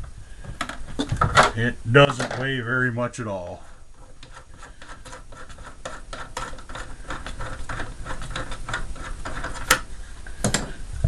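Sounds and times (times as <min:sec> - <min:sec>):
clicks and scrapes on plastic: 0:04.0 - 0:10.7.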